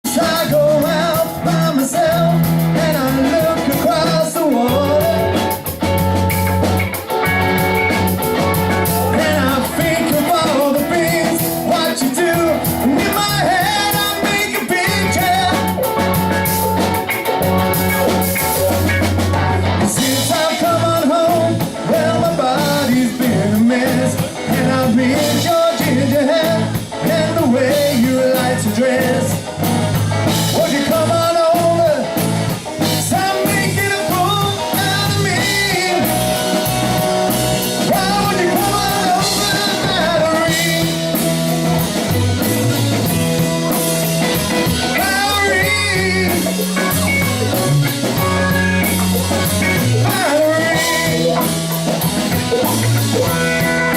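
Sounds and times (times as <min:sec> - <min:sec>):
band playing upbeat rock song: 0:00.0 - 0:53.9
person singing: 0:00.1 - 0:05.6, 0:08.8 - 0:16.0, 0:19.8 - 0:29.6, 0:30.3 - 0:32.2, 0:32.8 - 0:41.4, 0:43.0 - 0:51.7.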